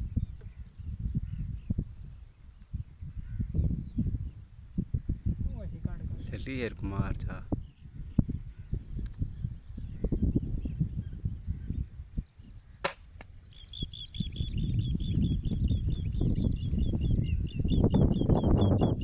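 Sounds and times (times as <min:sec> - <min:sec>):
birds chirping: 0:06.6 - 0:19.0
sharp crack: 0:12.8 - 0:13.4.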